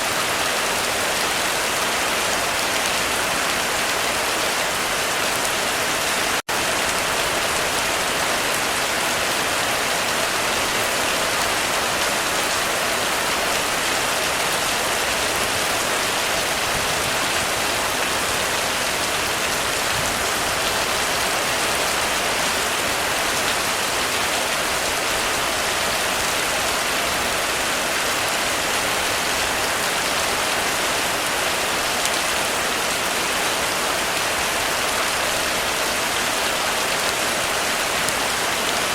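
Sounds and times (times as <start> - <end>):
heavy rain on a roof: 0.0 - 38.9.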